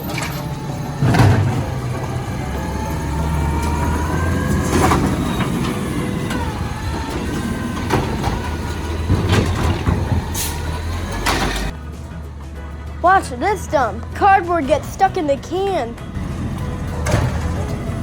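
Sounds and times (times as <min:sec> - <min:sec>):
clunks and knocks of bin: 0:00.0 - 0:11.8, 0:16.2 - 0:18.0
hydraulic arm whining: 0:00.0 - 0:18.0
truck engine running: 0:00.0 - 0:18.0.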